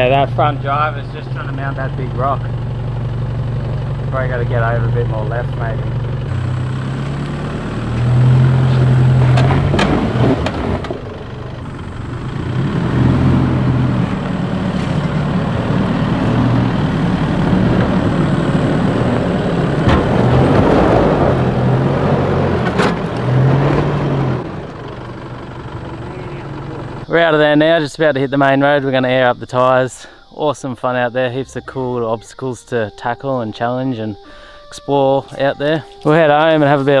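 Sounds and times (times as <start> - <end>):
off-road vehicle engine under load: 0.0 - 37.0
sharp knocks: 16.4 - 23.4.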